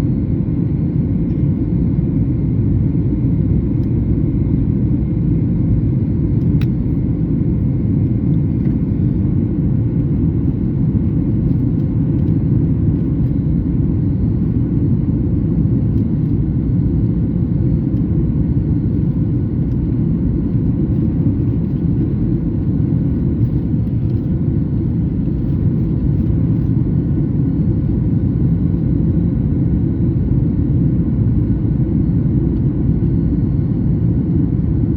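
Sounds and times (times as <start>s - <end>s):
airplane cabin rumble: 0.0s - 34.9s
small click: 6.4s - 6.8s.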